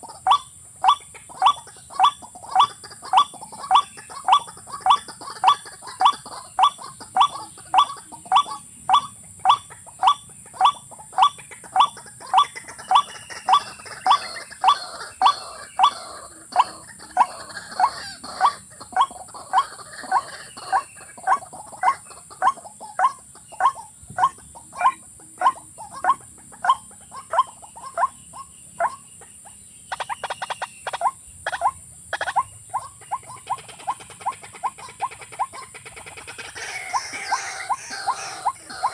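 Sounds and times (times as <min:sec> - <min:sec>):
waterbird calling: 0:00.0 - 0:29.1, 0:29.9 - 0:38.9.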